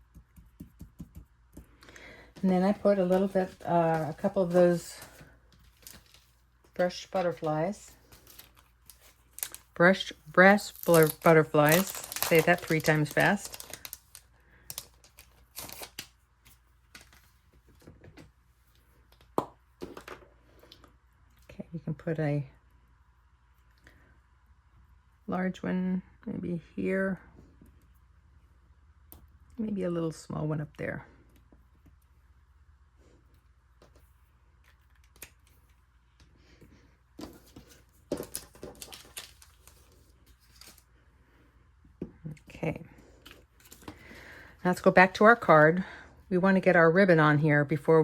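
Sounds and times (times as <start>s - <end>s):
paper and craft pieces rustling: 2.3s - 17.9s, 37.2s - 40.9s.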